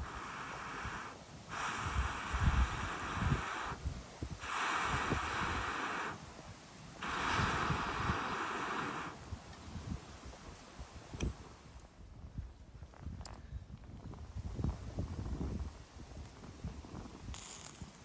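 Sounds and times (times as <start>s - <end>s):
air puffs blown into fire: 0.0s - 6.4s, 7.0s - 10.2s
burning wood crackling: 0.0s - 12.0s.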